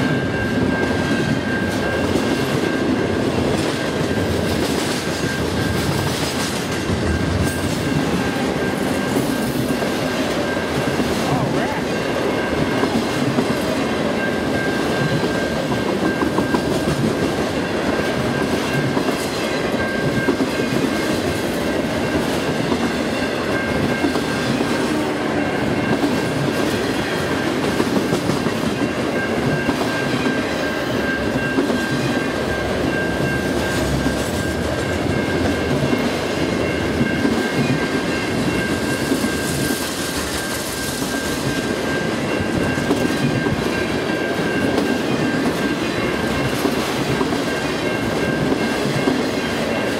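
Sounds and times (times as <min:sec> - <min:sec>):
high-pitched ringing tone: 0:00.0 - 0:04.5
freight train wheels rumbling: 0:00.0 - 0:49.9.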